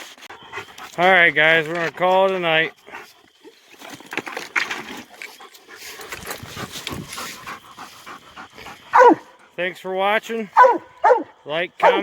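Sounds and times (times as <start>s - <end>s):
dog panting: 0.0s - 2.1s, 5.2s - 9.6s, 10.6s - 12.0s.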